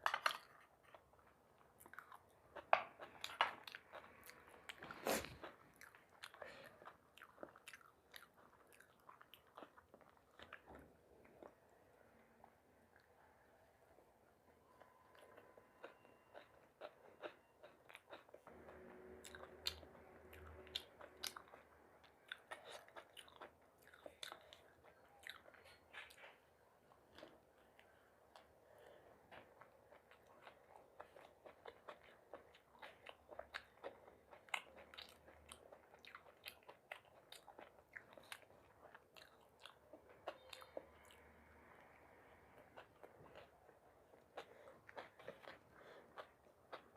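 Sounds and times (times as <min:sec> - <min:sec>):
person chewing food: 0:00.0 - 0:46.9.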